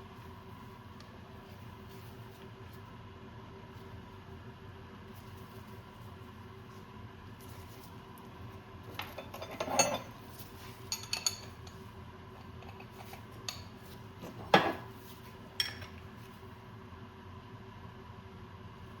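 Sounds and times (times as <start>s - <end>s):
steady low hum: 0.0s - 19.0s
metal tools clinking: 9.0s - 10.2s, 10.8s - 11.8s.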